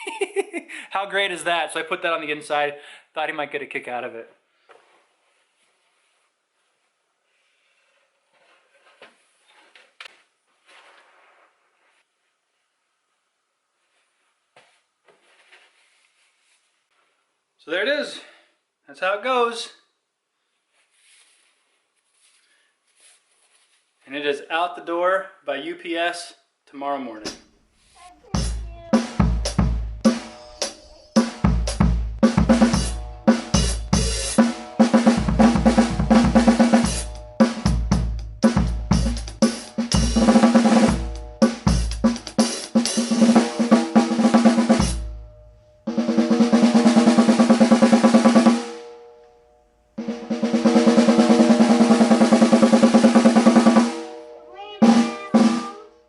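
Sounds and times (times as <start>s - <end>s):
snare drum groove strokes: 28.3s - 45.3s, 45.9s - 48.7s, 50.0s - 54.1s, 54.8s - 55.8s
deep low drum thumps: 28.4s - 30.1s, 31.5s - 34.2s, 35.1s - 42.4s
snare drum rolls: 31.2s - 45.1s, 45.9s - 48.7s, 50.0s - 54.1s, 54.8s - 55.8s.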